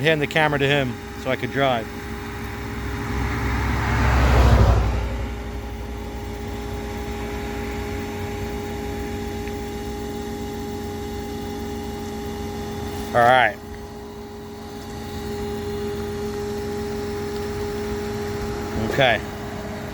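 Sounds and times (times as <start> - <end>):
low hum: 0.0 - 19.9
car driving past: 2.7 - 6.6.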